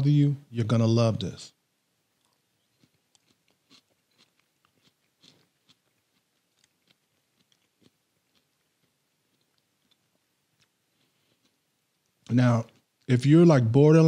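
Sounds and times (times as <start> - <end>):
mouth chewing food: 2.1 - 13.2.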